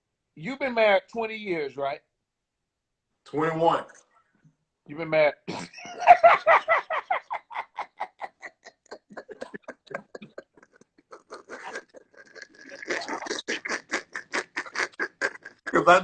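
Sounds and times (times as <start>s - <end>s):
person laughing hard: 5.5s - 16.0s.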